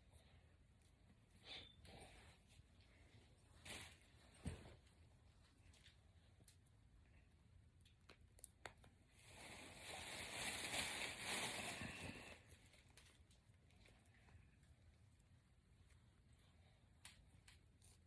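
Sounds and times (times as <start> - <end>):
hair rustling and crinkling: 2.4 - 6.6, 9.0 - 18.0.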